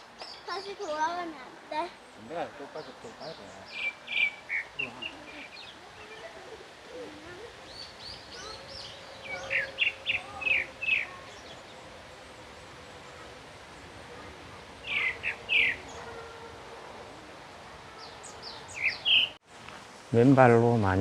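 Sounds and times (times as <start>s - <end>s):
faint outdoor hiss: 0.0s - 21.0s
bird chirping: 1.9s - 19.4s.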